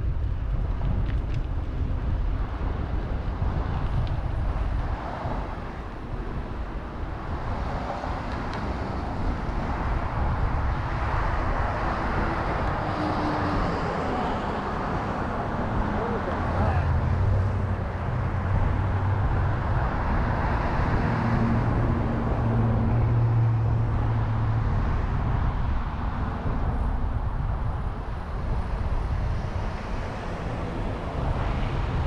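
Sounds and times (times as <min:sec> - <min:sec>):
road and traffic noise: 0:00.0 - 0:32.0
wind rumbling on microphone: 0:00.0 - 0:32.0.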